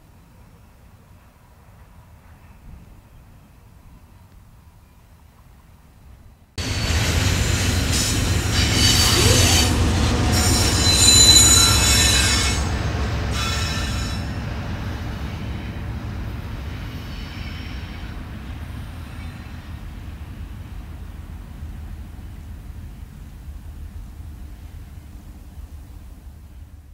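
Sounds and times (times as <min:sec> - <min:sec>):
train low rumble: 0:00.0 - 0:26.9
train wheels squealing: 0:06.6 - 0:14.5, 0:16.7 - 0:18.3.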